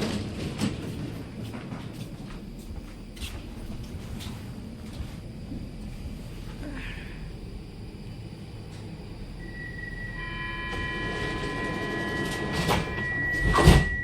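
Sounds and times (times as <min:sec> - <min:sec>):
train rumble: 0:00.0 - 0:14.0
long high-pitched tone: 0:07.8 - 0:14.0.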